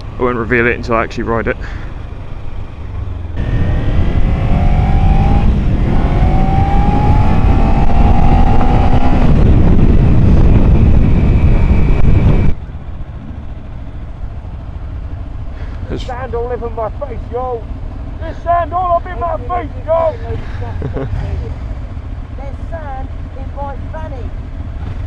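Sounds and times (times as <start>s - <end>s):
motorcycle engine accelerating: 2.7s - 25.0s
wind rush on microphone: 3.4s - 14.1s.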